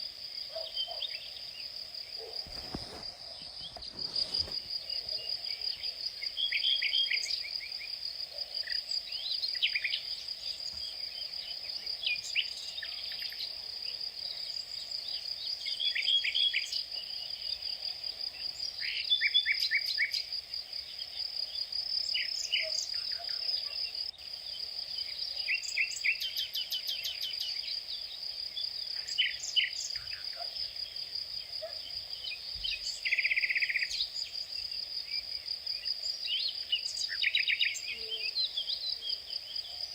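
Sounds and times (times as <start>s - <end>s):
high insect trill: 0.0s - 13.5s
small birds chirping: 0.0s - 13.6s, 18.4s - 39.9s.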